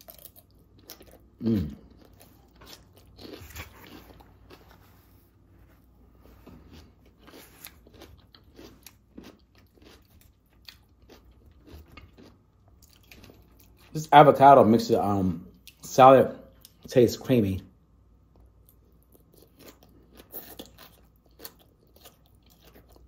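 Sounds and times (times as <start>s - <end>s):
crunchy chewing: 0.0s - 5.1s, 6.2s - 14.0s, 18.3s - 23.0s
person humming: 1.4s - 1.8s.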